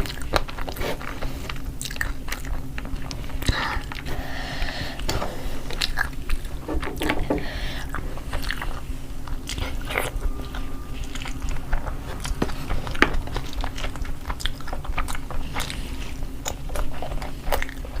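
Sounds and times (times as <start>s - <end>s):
chewing and mouth smacks: 0.0s - 4.1s, 7.8s - 18.0s
steady low hum: 0.0s - 18.0s.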